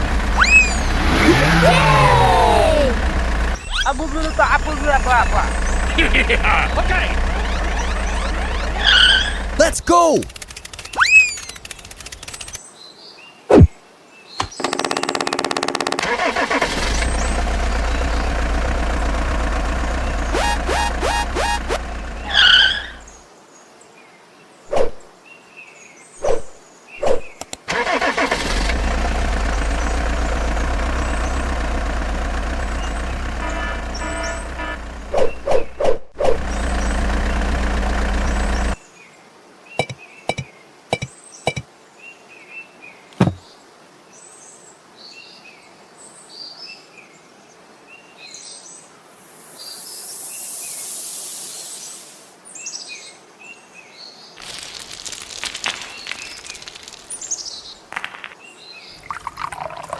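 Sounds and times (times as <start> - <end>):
motor running: 0.0 - 12.6, 14.4 - 23.1, 28.3 - 35.2, 36.3 - 38.8
birds chirping: 0.0 - 12.7, 13.5 - 23.3, 29.3 - 35.8, 36.4 - 38.8, 39.7 - 41.7, 54.3 - 59.9
knocks: 43.2 - 43.4
rushing hiss: 49.1 - 52.4.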